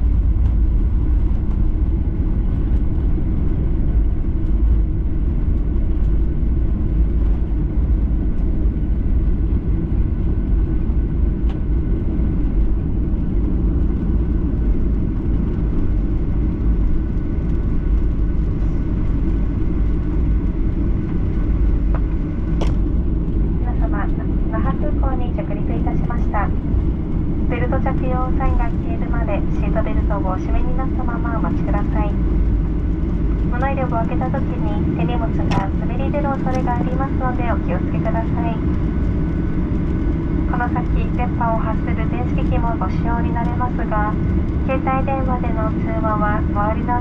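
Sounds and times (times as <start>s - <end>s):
aircraft cabin rumble: 0.0s - 47.0s.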